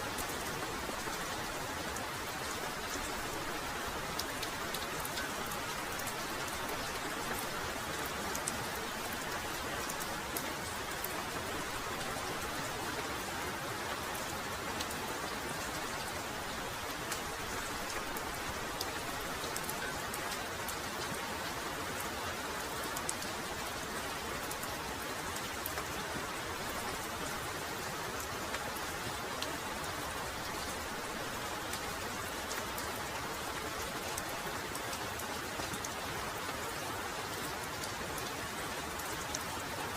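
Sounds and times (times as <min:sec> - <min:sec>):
raindrops ticking: 0:00.1 - 0:12.6.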